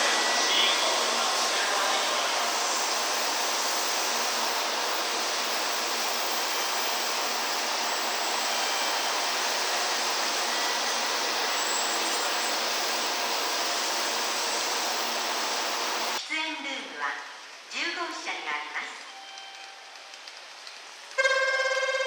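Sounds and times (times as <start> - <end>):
train rushing past: 0.0 - 16.2.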